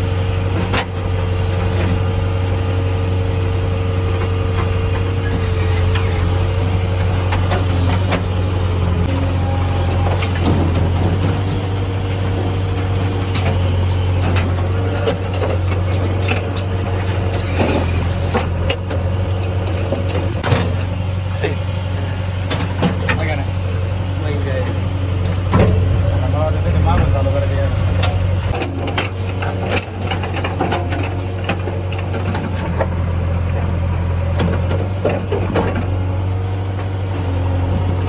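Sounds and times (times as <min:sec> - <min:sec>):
diesel engine running: 0:00.0 - 0:38.0
metal clanks and knocks: 0:05.3 - 0:20.8, 0:25.2 - 0:29.9.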